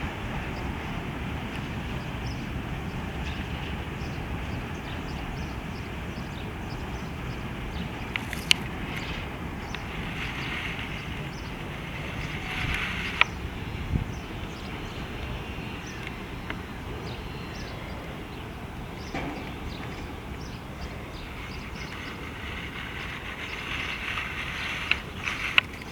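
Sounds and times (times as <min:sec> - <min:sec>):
freight train rumbling past: 0:00.0 - 0:25.9
metallic clicks from train wheels: 0:08.1 - 0:13.4, 0:19.0 - 0:25.9.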